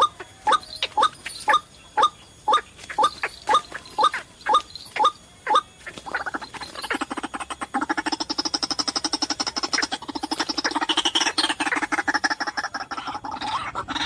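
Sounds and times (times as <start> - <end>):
waterhen calling: 0.0 - 14.0.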